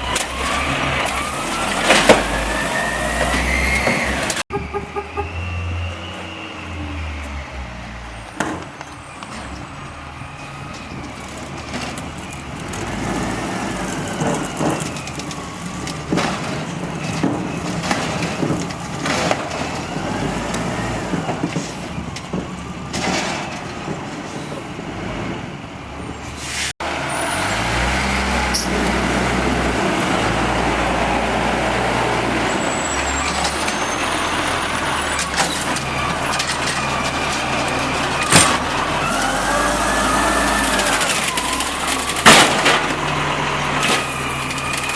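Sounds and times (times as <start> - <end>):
garbage truck engine revving: 0.0 - 44.9
knocks and clanks: 10.7 - 19.9, 20.5 - 24.6, 35.1 - 39.2, 40.8 - 44.9.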